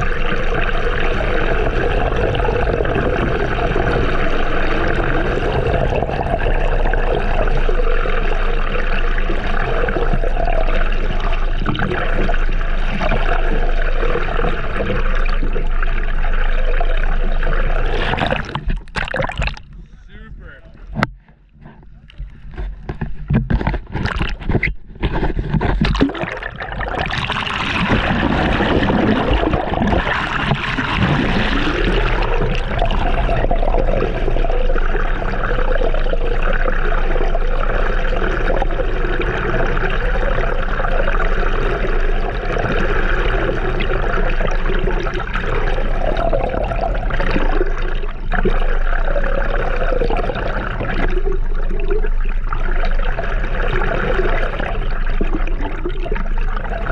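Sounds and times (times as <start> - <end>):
water rushing and gurgling: 0.0 - 21.1, 25.8 - 56.9.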